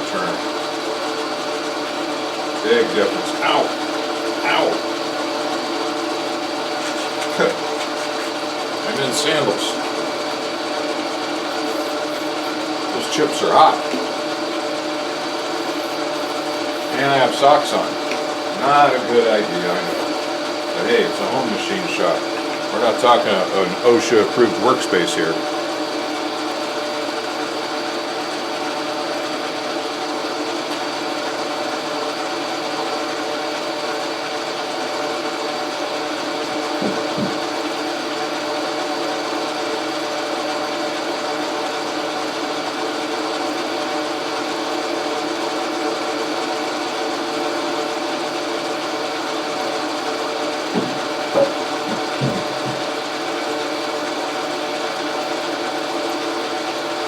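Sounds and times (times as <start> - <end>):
metal lathe humming: 0.0 - 57.0
faint knocks: 36.8 - 37.5, 50.8 - 53.0.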